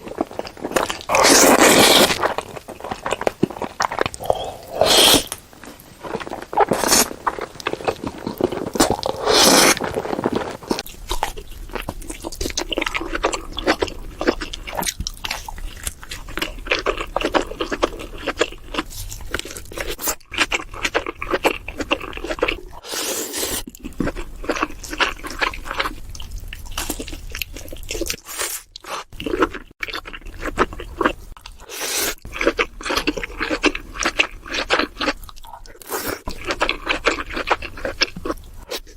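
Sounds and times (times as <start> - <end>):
crunching and chewing food: 0.0 - 38.9.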